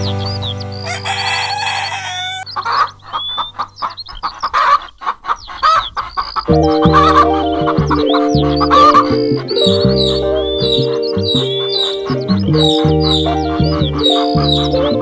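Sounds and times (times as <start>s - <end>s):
background music: 0.0s - 3.0s, 6.5s - 15.0s
chickens clucking: 0.0s - 15.0s
rooster crowing: 0.8s - 2.9s.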